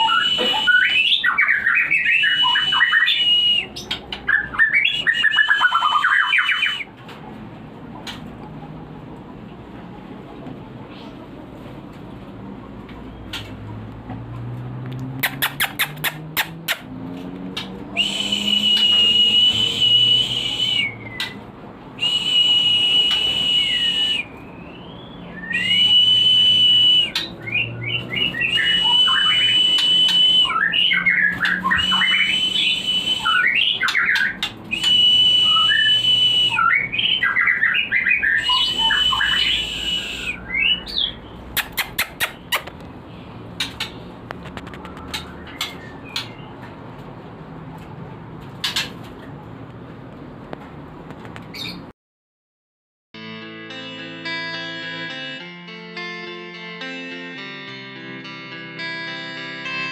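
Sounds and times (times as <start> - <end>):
bird singing whistles and chirps: 0.0 - 6.9, 18.0 - 21.4, 22.0 - 42.6.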